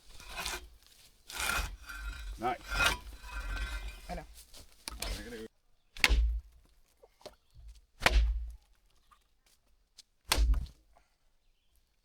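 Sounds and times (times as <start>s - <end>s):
heavy blows with deep thud: 6.0s - 6.5s, 8.0s - 8.6s, 10.3s - 10.7s.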